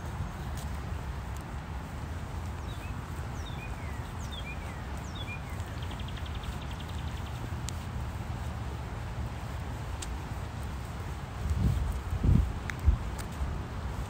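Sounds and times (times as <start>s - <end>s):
footsteps on paved path: 0.0s - 14.0s
steady low rumble: 0.0s - 14.0s
small songbird chirping: 2.3s - 8.5s.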